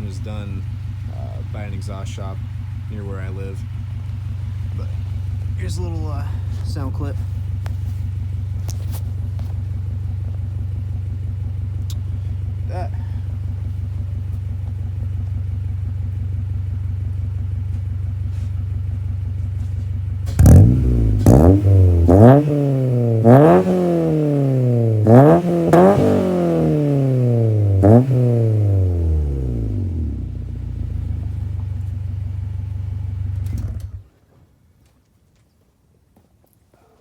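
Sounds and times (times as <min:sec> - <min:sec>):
car engine idling and revving: 0:00.0 - 0:34.1.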